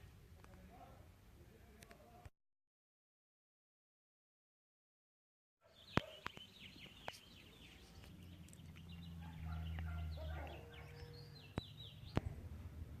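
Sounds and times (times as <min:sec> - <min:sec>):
small birds chirping: 0:05.6 - 0:13.0.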